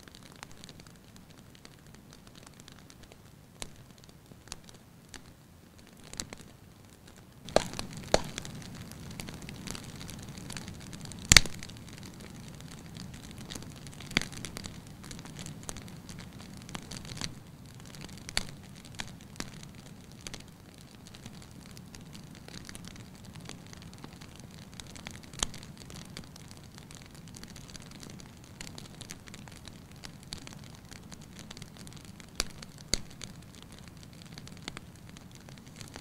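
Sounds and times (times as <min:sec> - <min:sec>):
soft hiss: 0:00.0 - 0:36.0
wood fire crackling: 0:00.0 - 0:36.0
sharp loud fire pops: 0:07.5 - 0:08.5.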